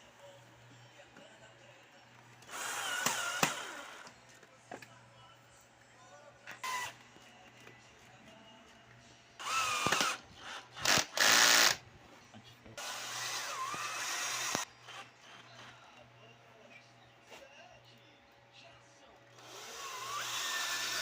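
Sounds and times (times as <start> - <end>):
electric drill running: 2.5 - 4.1, 9.4 - 10.2, 10.8 - 11.8, 12.8 - 14.7, 19.4 - 21.0.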